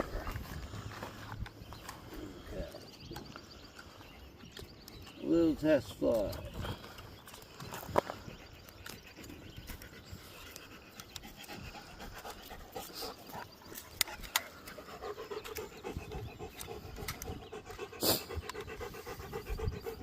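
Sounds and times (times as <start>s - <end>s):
dog panting: 8.3s - 20.0s.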